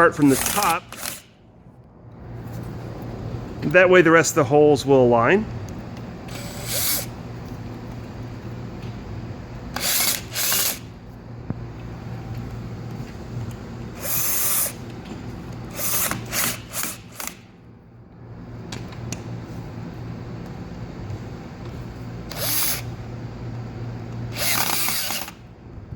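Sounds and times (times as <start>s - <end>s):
cordless drill driving screws: 0.2s - 1.3s, 6.3s - 7.1s, 9.7s - 10.9s, 14.0s - 14.8s, 15.7s - 17.4s, 22.3s - 22.9s, 24.3s - 25.4s.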